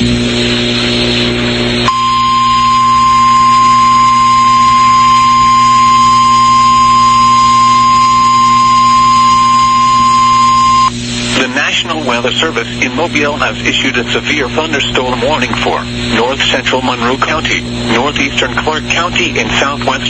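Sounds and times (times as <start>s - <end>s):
low electrical hum: 0.0s - 20.0s
steady alarm tone: 1.9s - 11.0s.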